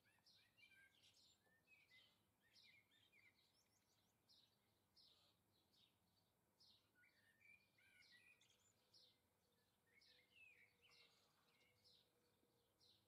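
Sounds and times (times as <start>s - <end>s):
small songbirds chirping: 0.0s - 13.0s.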